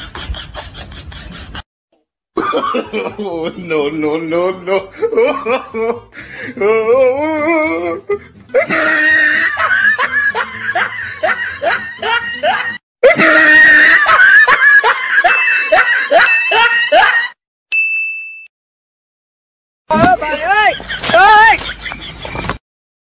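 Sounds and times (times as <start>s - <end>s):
person laughing loudly: 2.4s - 17.4s, 20.2s - 22.5s.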